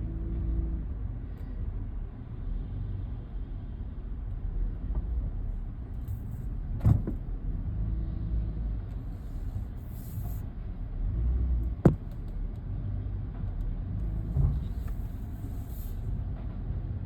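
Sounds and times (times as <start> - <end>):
car rumbling: 0.0 - 17.0
sharp thump: 11.8 - 12.2.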